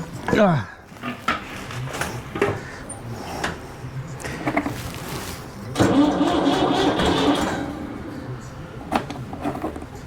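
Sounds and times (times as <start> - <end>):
clunks and clicks: 5.8 - 7.8
tractor engine starting: 5.8 - 8.1.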